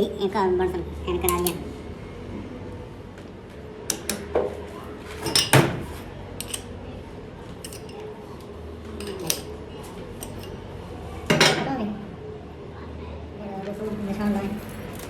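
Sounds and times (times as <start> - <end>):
metal tools clinking: 5.2 - 5.6, 6.4 - 6.7, 7.6 - 8.0, 9.0 - 9.5, 10.2 - 10.6.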